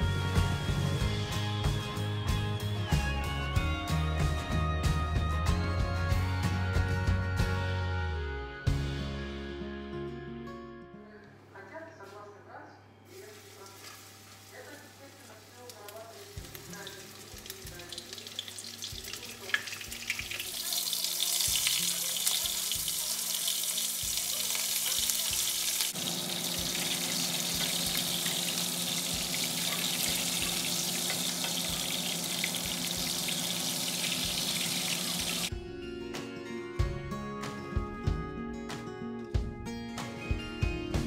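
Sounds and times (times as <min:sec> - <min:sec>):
music: 0:00.0 - 0:41.0
patties sizzling in a frying pan: 0:13.1 - 0:35.5.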